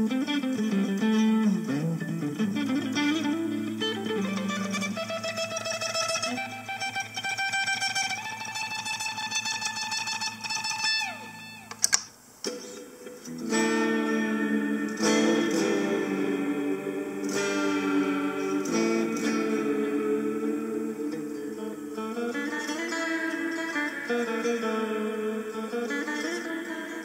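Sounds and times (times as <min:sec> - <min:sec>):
electric guitar notes: 0:00.0 - 0:27.0
strummed guitar chords: 0:00.0 - 0:27.0
sharp clicks: 0:11.7 - 0:12.6
falling pitch glide: 0:13.3 - 0:23.9.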